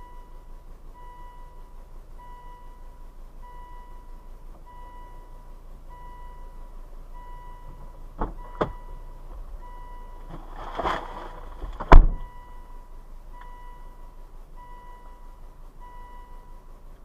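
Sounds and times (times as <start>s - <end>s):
rustling: 10.2s - 12.4s
loud thump: 11.7s - 12.3s.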